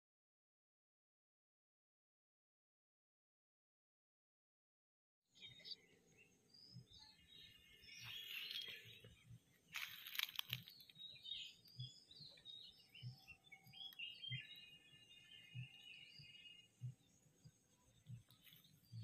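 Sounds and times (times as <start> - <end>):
small birds chirping: 5.3 - 19.0
crunching rustle: 9.7 - 11.4
soft low thumps: 10.7 - 19.0.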